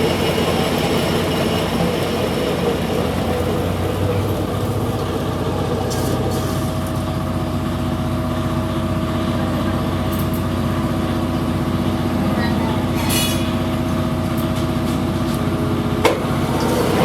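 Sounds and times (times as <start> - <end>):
metal lathe running: 0.0 - 17.0.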